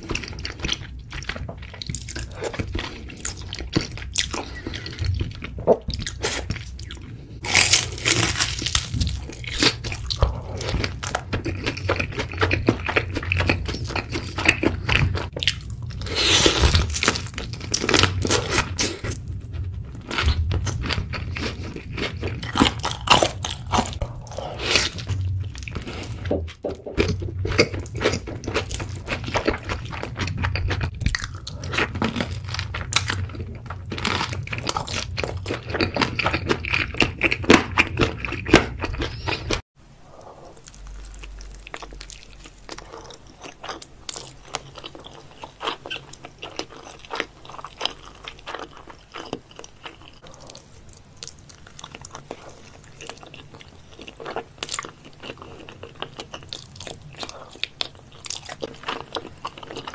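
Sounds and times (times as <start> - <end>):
loud crunching and chewing: 0.0 - 39.6, 40.5 - 59.9
quiet chewing: 26.9 - 59.9.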